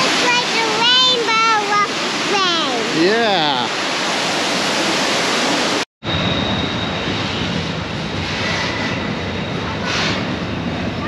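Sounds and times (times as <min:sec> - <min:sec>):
freight train wheels rumbling: 0:06.1 - 0:11.0.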